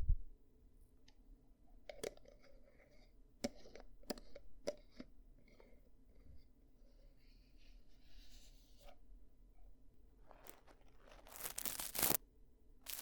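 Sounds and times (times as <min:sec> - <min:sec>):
light scraping on microphone: 0:10.2 - 0:12.2.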